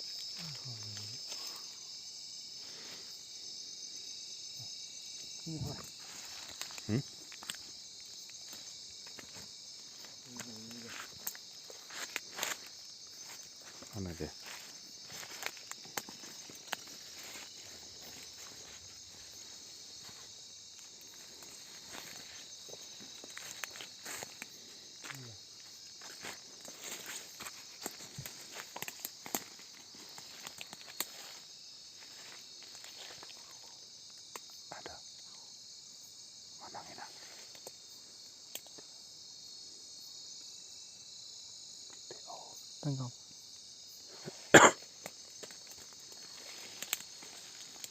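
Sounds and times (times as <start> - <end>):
crickets chirring: 0.0 - 47.9
night insects chorus: 0.0 - 47.9
footsteps in undergrowth: 5.9 - 33.4, 45.0 - 47.9.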